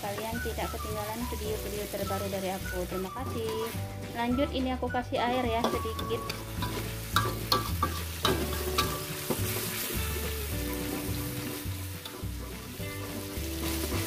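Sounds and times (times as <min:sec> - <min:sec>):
chili paste sizzling in a wok: 0:00.0 - 0:14.0
metal spatula scraping a pan: 0:05.6 - 0:14.0.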